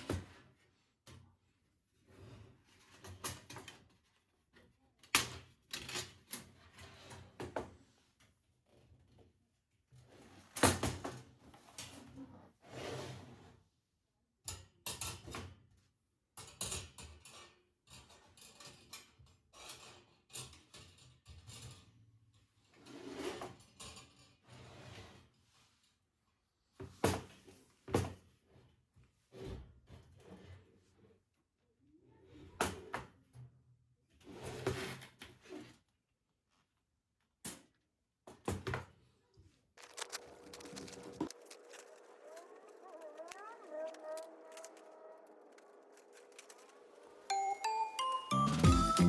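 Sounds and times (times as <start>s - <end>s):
packaging rustling: 39.8s - 47.3s.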